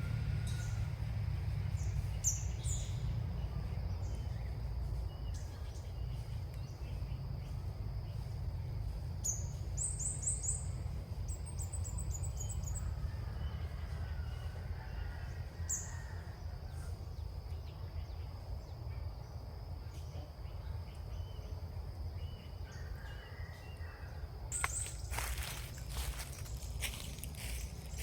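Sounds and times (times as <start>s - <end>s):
steady low rumble: 0.0s - 13.9s, 24.4s - 28.0s
small birds chirping: 24.5s - 28.0s.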